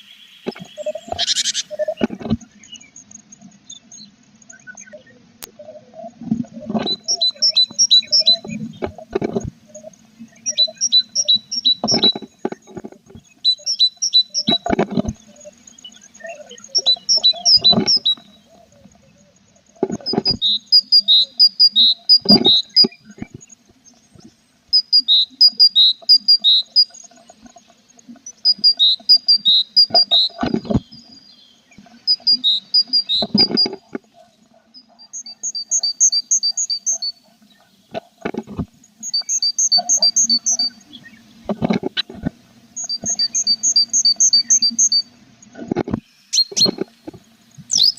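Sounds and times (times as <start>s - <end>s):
faint steady hum: 0.0s - 47.9s
nestlings chirping: 6.8s - 9.0s, 10.3s - 18.4s, 20.0s - 23.6s, 24.2s - 27.6s, 28.2s - 37.2s, 39.0s - 41.4s, 42.8s - 45.1s, 47.5s - 47.9s.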